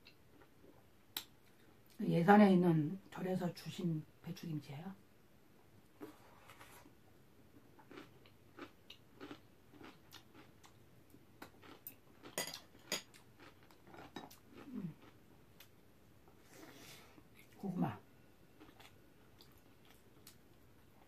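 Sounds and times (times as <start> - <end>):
person chewing: 7.7 - 17.6, 18.5 - 21.0.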